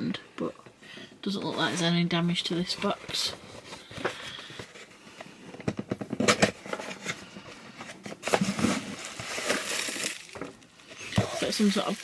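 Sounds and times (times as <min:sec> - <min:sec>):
packaging rustling: 0:02.8 - 0:12.0.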